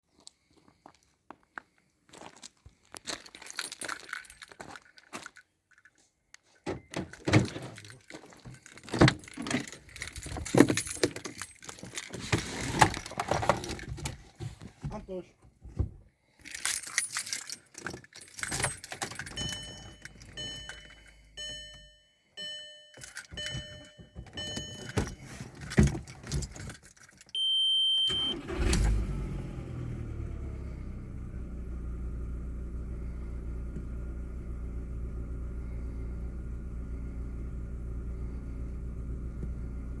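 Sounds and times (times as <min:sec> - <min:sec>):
keys jangling in ignition: 0:02.9 - 0:14.3, 0:16.4 - 0:30.9
car engine starting and idling: 0:16.6 - 0:40.0
car warning beeps: 0:18.7 - 0:25.4, 0:27.3 - 0:29.0.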